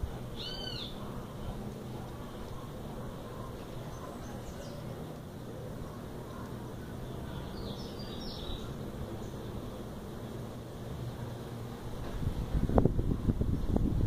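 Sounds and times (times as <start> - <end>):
low background rumble: 0.0 - 14.0
faint bird chirps: 0.4 - 1.0.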